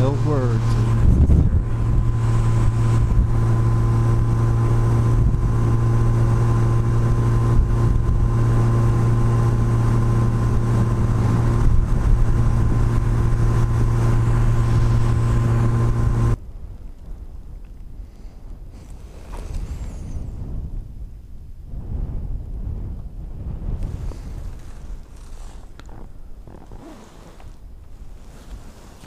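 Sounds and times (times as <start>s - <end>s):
motorcycle engine cruising: 0.0s - 16.4s, 23.8s - 29.0s
wind rush: 0.0s - 29.0s.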